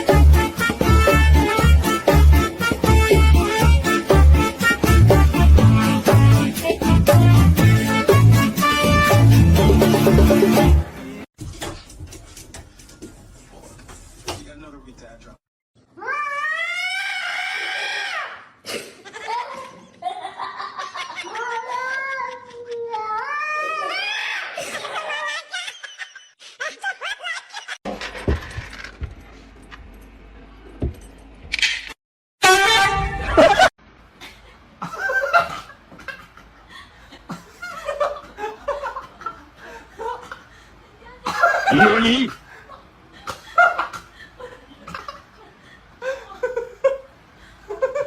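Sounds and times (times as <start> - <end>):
cat yowling: 16.0 - 18.2.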